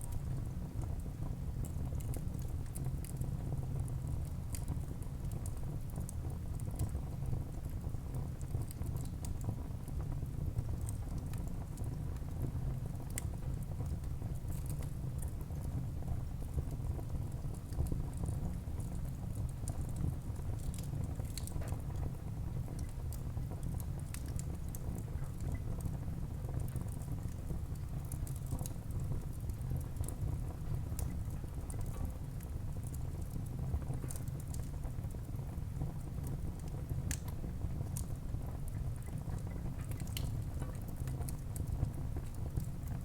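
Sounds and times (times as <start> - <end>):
logs crackling and popping: 19.7 - 21.8, 36.2 - 41.4.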